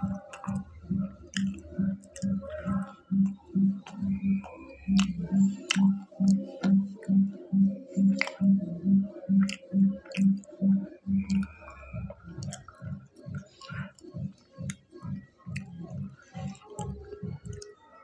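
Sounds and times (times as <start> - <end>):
mouth clicks: 0.0 - 17.8
person chewing food: 3.8 - 7.1, 8.0 - 8.6, 9.3 - 10.5, 11.1 - 14.0.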